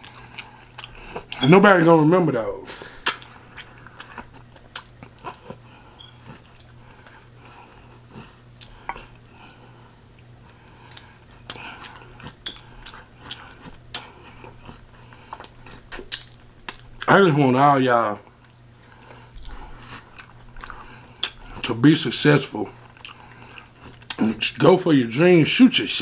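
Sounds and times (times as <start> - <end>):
wet chewing smacks: 0.0 - 1.4, 2.8 - 17.1, 18.2 - 21.7, 22.7 - 24.3.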